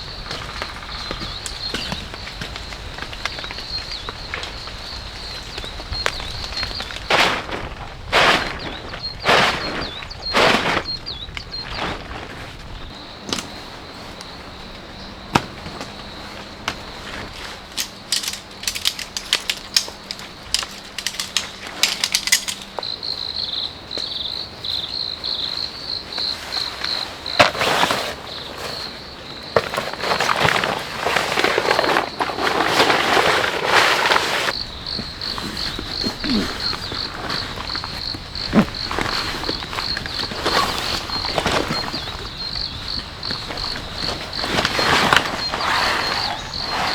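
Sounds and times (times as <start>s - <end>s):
crickets trilling: 0.0s - 46.9s
loud rustling: 11.8s - 22.8s, 29.6s - 46.9s.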